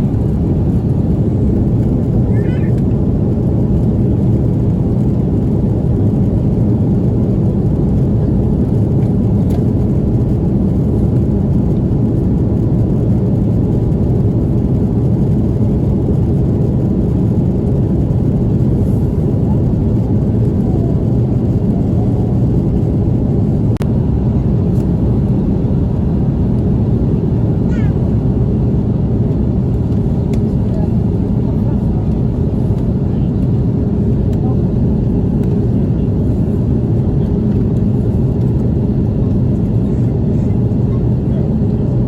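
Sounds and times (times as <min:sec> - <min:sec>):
jet engines rumbling: 0:00.0 - 0:42.0.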